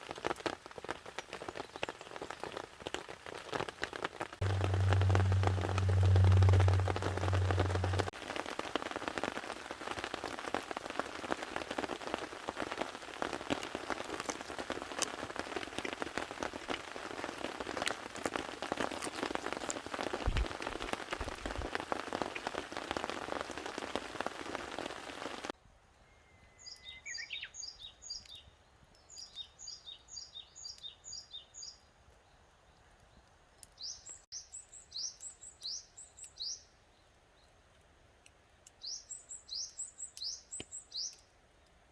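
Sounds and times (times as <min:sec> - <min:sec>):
rain drumming on a tarp: 0:00.0 - 0:25.6
low steady hum: 0:04.4 - 0:08.1
small birds chirping: 0:25.9 - 0:37.5, 0:38.7 - 0:41.7.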